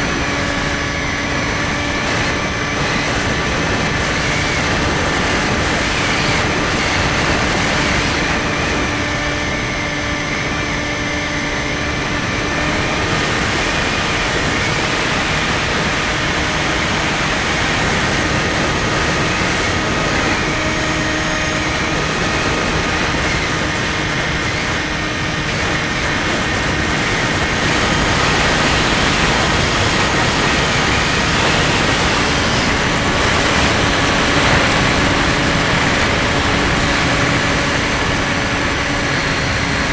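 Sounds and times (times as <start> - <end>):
electric motor whine: 0.0 - 39.9
wind rushing: 0.0 - 39.9.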